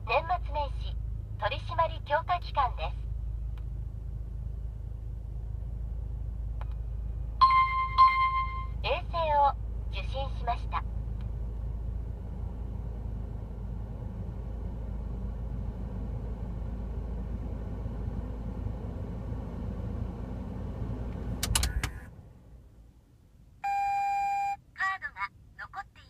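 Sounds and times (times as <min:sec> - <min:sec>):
car engine idling: 0:00.0 - 0:22.9
ignition key clicks: 0:21.1 - 0:22.1.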